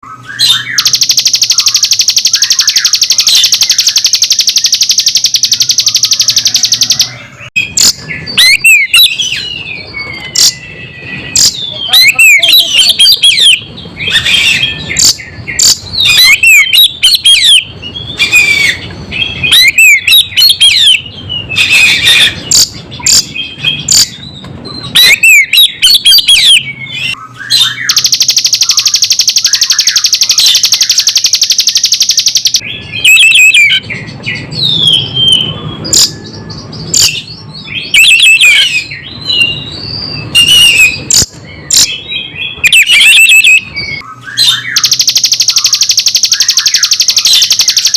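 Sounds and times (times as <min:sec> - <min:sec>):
buzzing bird trill: 0:00.0 - 0:09.3, 0:11.3 - 0:13.7, 0:14.9 - 0:18.8, 0:19.5 - 0:21.0, 0:24.8 - 0:33.8, 0:37.9 - 0:39.6, 0:42.6 - 0:47.9
songbird whistled chirps: 0:00.0 - 0:47.9.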